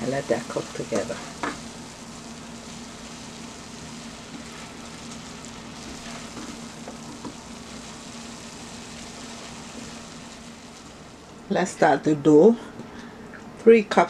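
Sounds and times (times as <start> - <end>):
fish and vegetables sizzling: 0.0 - 12.1
wooden spoon scraping and tapping: 5.8 - 7.4.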